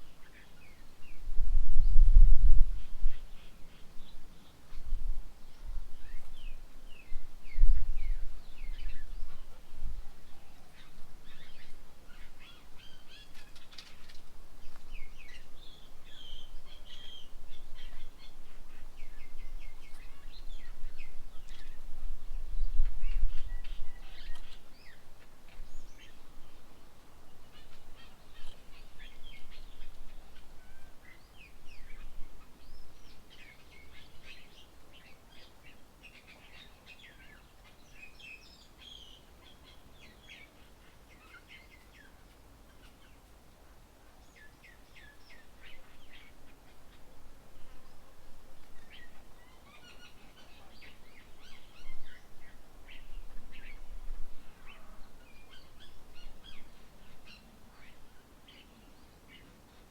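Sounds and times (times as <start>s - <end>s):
birds chirping: 2.8s - 43.5s, 44.1s - 59.9s.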